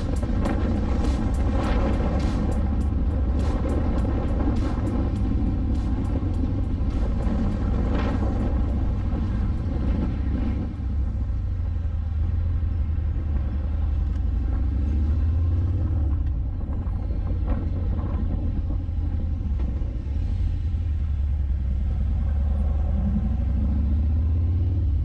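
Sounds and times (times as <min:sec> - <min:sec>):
motorcycle engine running: 0:00.0 - 0:11.6
wind rumble on microphone: 0:00.0 - 0:25.0.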